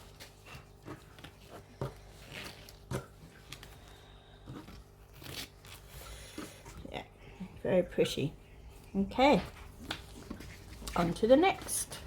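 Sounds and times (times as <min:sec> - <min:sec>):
packaging rustling and tapping: 0:00.0 - 0:05.8.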